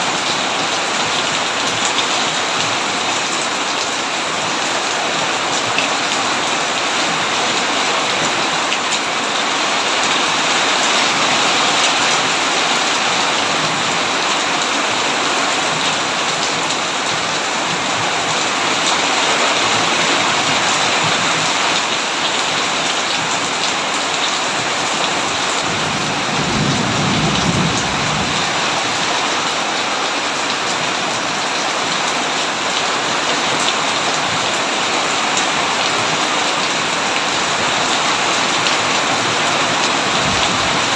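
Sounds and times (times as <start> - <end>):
heavy rain on a tin roof: 0.0 - 40.9
low thunder rumble: 25.7 - 28.6.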